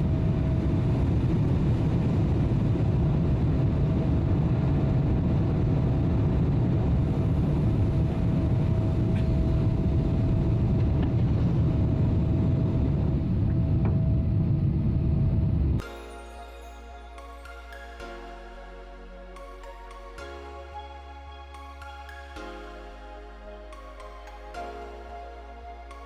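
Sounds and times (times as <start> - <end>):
airliner cabin rumble: 0.0 - 15.8.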